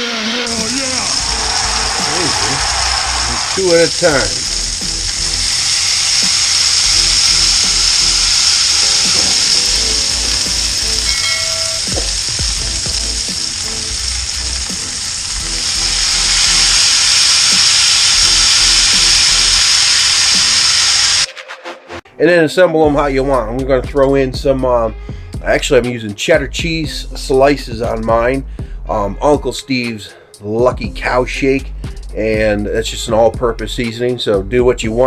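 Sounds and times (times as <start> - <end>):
music with bass beat: 0.0 - 19.7, 22.9 - 29.6, 30.6 - 35.0
bacon grease sizzling: 0.1 - 21.3.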